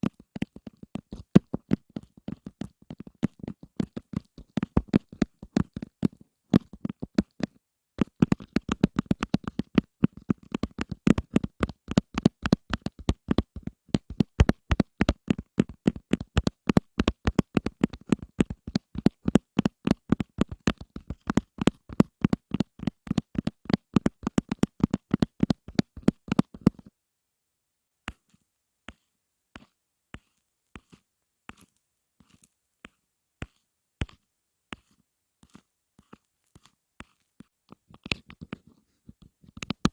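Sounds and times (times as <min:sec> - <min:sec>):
fast tapping: 0:00.0 - 0:26.9, 0:37.7 - 0:39.9.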